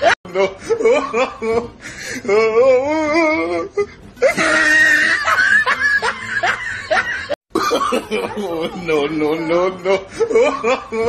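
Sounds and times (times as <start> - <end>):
woman laughing loudly: 0.0 - 1.7, 4.2 - 8.7, 9.8 - 11.0.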